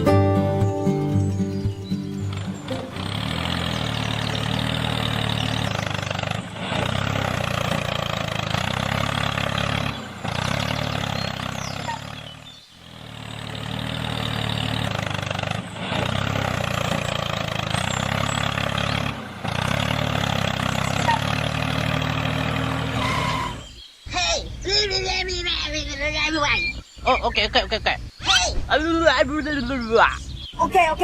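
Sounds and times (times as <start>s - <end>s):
small tractor motor running: 1.2s - 23.7s.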